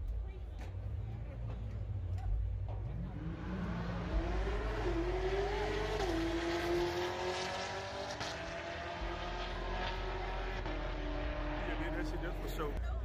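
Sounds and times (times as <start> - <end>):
race car engine accelerating: 2.6 - 12.8.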